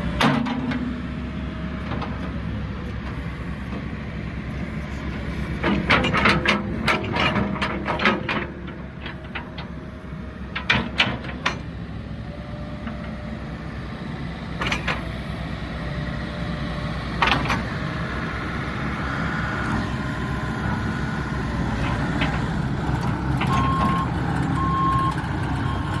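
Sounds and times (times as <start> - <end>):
diesel engine running: 0.0 - 26.0
reversing alarm beeping: 2.6 - 5.7, 23.4 - 26.0.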